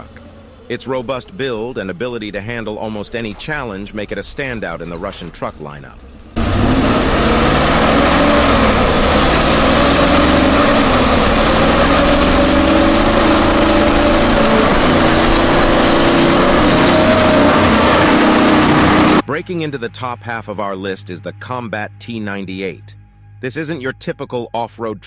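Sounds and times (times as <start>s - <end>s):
heavy truck engine running: 0.0s - 19.2s.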